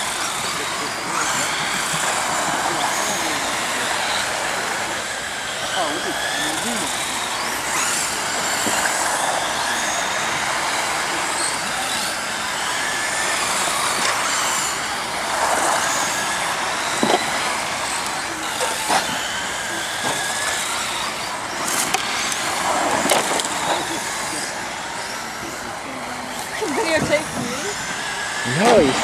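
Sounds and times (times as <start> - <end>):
high motor whines: 0.0 - 29.0.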